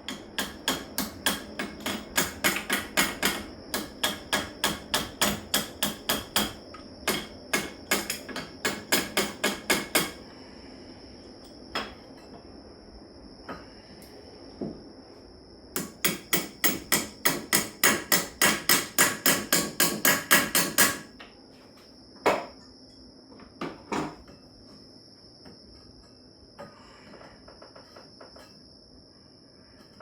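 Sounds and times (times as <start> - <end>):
hammer strikes: 0.1 - 10.2, 15.8 - 21.0.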